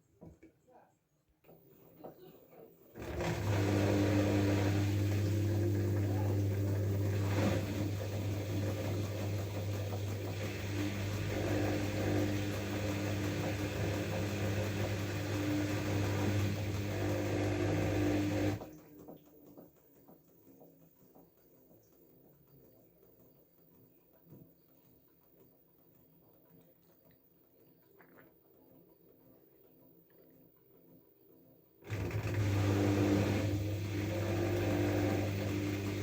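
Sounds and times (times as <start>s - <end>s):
washing machine humming: 2.9s - 19.4s, 31.8s - 36.0s.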